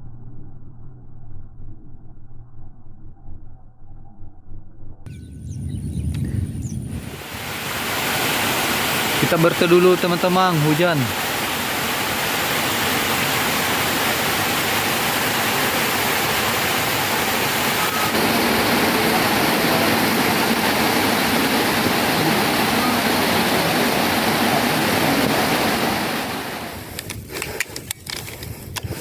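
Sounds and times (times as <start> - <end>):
rain falling: 7.0 - 27.1.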